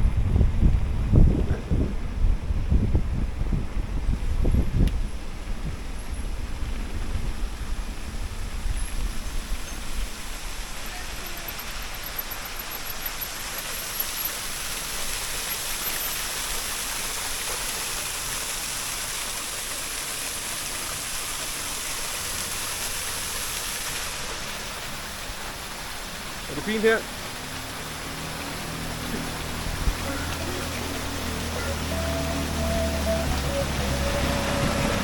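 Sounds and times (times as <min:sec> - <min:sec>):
low gusty rumbling: 0:00.0 - 0:11.9, 0:20.8 - 0:35.0
water rushing: 0:00.0 - 0:35.0.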